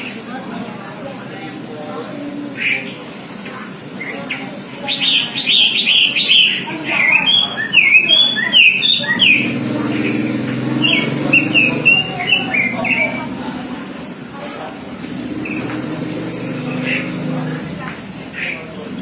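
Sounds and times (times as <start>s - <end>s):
bird singing chirpy notes: 4.0s - 13.4s.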